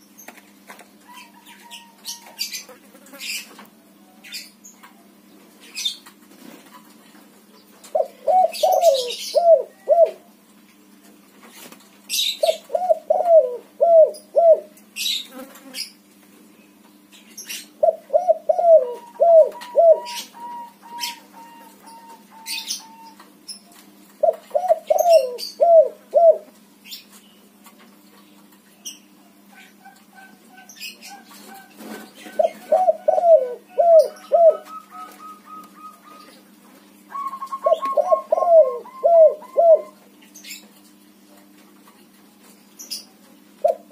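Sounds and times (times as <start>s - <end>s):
dove cooing: 7.9s - 10.3s, 12.2s - 14.7s, 17.8s - 23.2s, 24.2s - 26.5s, 29.6s - 40.0s.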